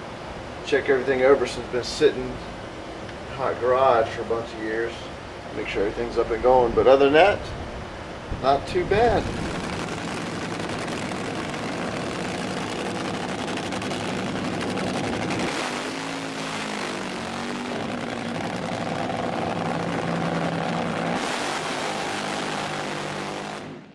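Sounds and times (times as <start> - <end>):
model plane engine running: 9.2 - 23.6.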